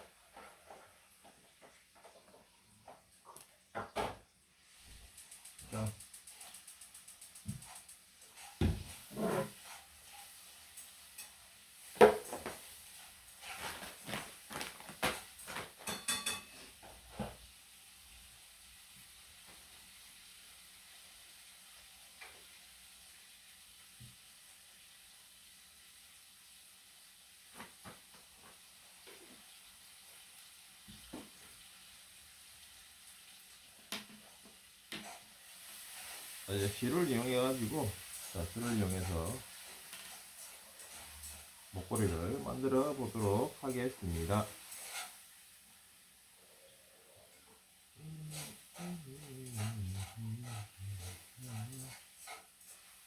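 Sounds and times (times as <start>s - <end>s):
faint steady hiss: 0.0s - 53.0s
small hard objects clicking: 5.1s - 8.1s.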